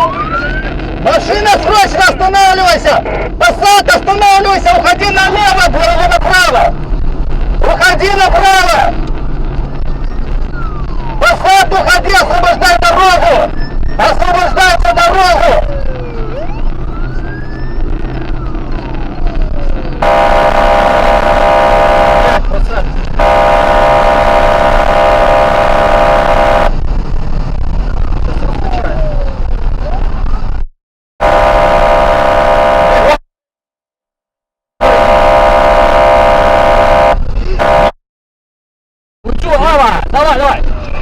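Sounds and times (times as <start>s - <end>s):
police siren wailing: 0.0s - 6.8s, 9.8s - 22.6s, 23.2s - 26.8s, 28.3s - 29.7s, 31.2s - 33.2s
loud steady horn blast: 20.0s - 22.5s, 23.2s - 26.8s, 31.2s - 33.2s, 34.8s - 38.0s.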